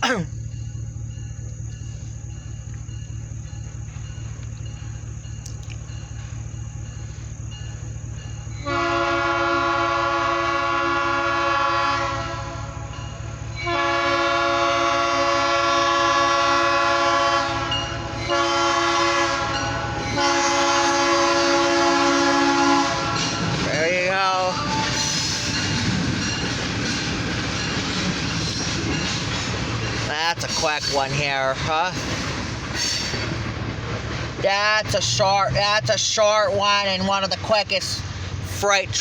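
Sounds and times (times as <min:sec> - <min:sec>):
locomotive engine rumble: 0:00.0 - 0:39.0
locomotive horn blasts: 0:08.6 - 0:12.9, 0:13.6 - 0:23.5.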